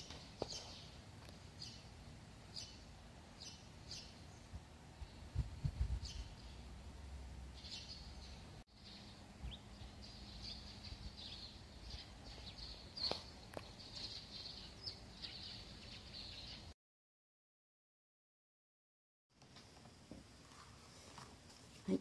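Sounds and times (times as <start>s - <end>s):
small birds chirping: 0.0s - 6.8s, 7.5s - 16.7s
faint background noise: 19.3s - 22.0s.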